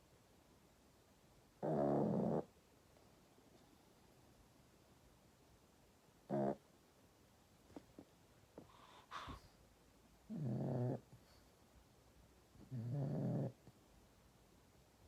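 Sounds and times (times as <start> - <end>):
dog snoring: 1.6 - 2.5, 6.3 - 6.6, 10.3 - 11.1, 12.6 - 13.6.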